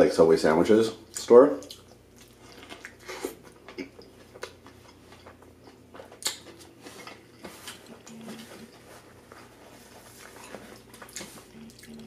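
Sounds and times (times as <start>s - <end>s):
crackle of food: 1.6s - 8.8s
person chewing food: 1.6s - 12.0s.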